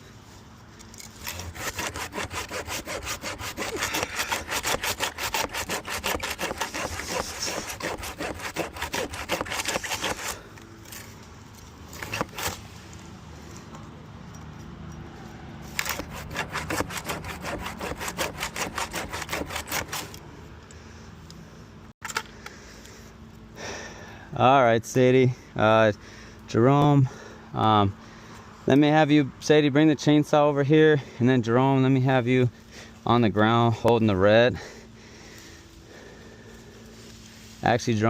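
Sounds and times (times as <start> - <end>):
hand saw cutting branch: 1.0 - 13.0, 15.6 - 20.3.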